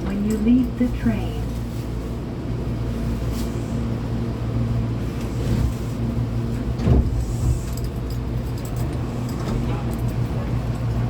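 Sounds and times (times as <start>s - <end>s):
train electrical hum: 0.0s - 11.0s.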